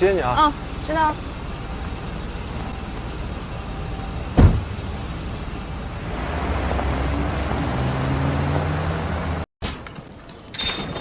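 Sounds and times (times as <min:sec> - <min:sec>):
low vehicle rumble: 0:00.0 - 0:09.5
sharp thump: 0:04.4 - 0:04.7.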